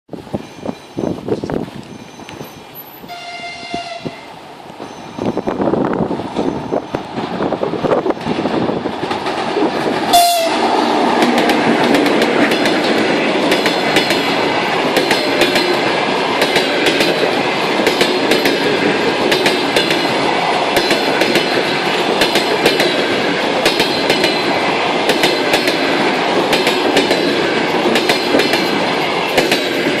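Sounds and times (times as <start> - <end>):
train passing at speed: 0.1 - 30.0
wheels clicking over rail joints: 6.2 - 30.0.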